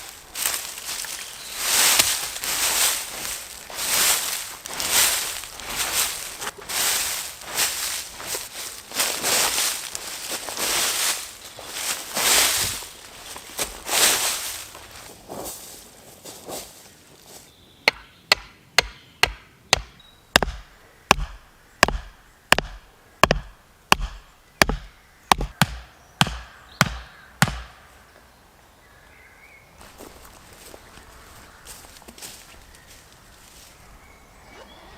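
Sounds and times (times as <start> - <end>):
chopping strikes on wood: 17.9 - 27.8.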